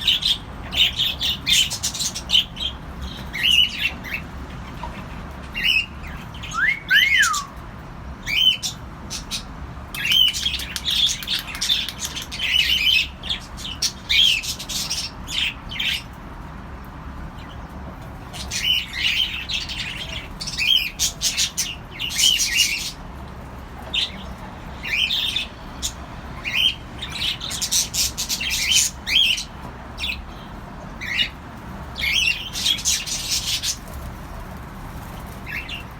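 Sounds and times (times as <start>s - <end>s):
cockatiels chirping and squawking: 0.0s - 7.6s, 8.2s - 16.2s, 17.4s - 23.0s, 23.8s - 35.9s
falling whistles: 6.5s - 7.6s.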